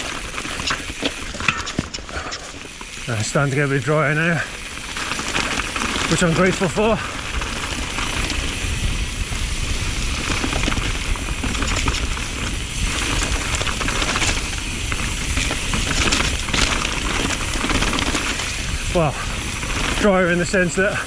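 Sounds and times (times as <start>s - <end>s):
bike clicks and rattles: 0.0s - 21.0s
bike tyres on wet dirt: 0.0s - 21.0s
wind rumbling on microphone: 4.5s - 21.0s.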